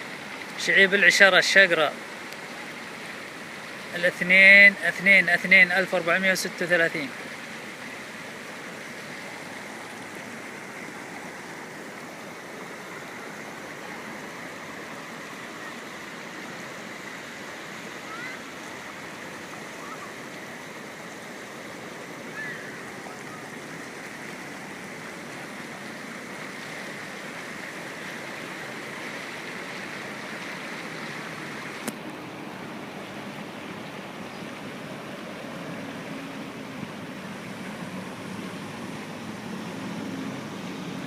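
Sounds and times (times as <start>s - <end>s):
rushing stream water: 0.0s - 41.0s.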